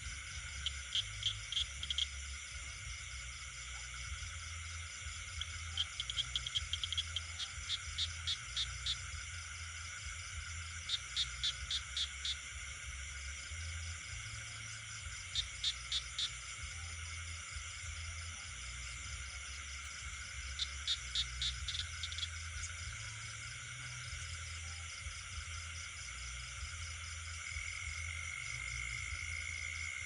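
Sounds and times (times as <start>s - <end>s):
high-pitched insect trilling: 0.0s - 30.0s
frogs short sharp calls: 0.4s - 2.3s, 3.6s - 9.4s, 10.6s - 12.7s, 14.3s - 24.6s.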